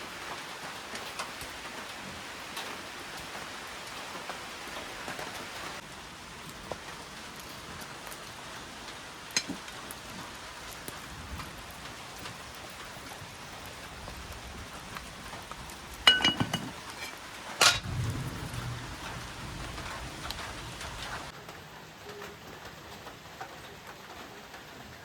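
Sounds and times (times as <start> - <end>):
steady watery hiss: 0.0 - 21.3
metallic clinking with ringing tone: 16.1 - 18.0
short low rumble: 17.8 - 21.3.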